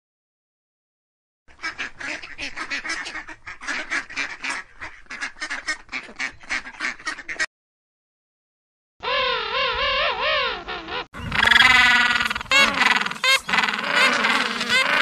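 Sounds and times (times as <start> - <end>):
ducks quacking: 1.5 - 7.5, 10.0 - 15.0.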